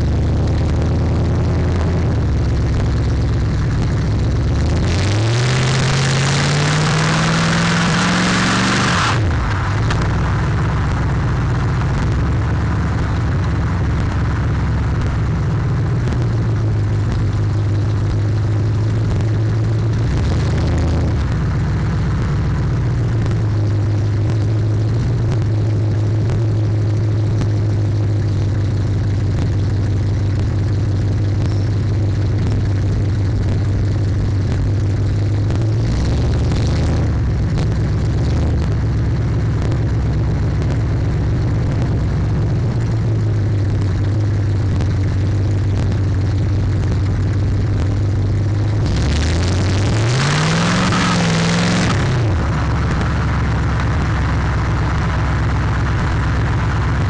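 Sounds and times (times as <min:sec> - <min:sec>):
car engine droning in cabin: 0:00.0 - 0:57.0.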